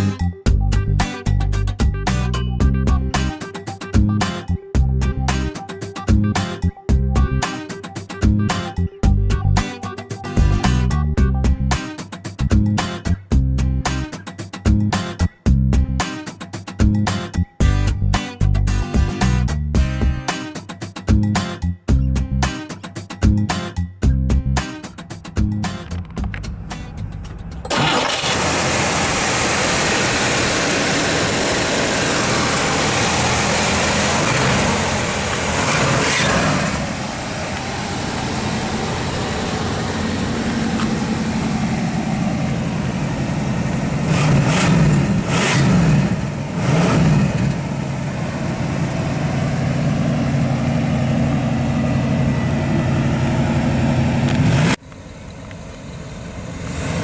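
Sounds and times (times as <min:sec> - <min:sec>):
car engine running and revving: 0:25.1 - 0:57.0.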